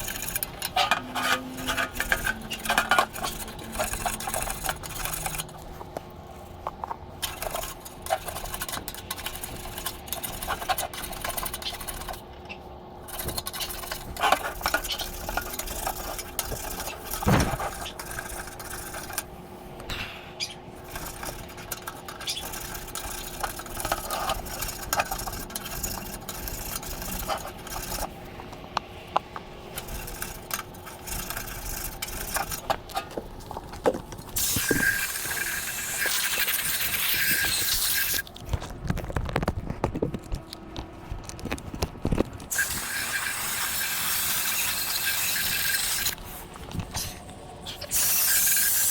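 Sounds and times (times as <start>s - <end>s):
metal scraping: 0.0s - 5.9s, 13.1s - 19.3s.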